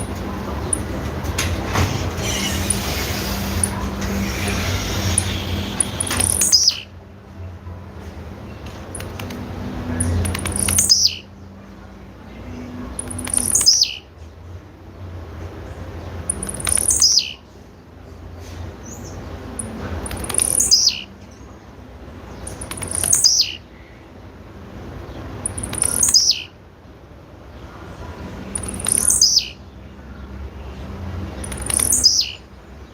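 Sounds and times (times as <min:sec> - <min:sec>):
bird calling high downward notes: 0:02.2 - 0:07.0.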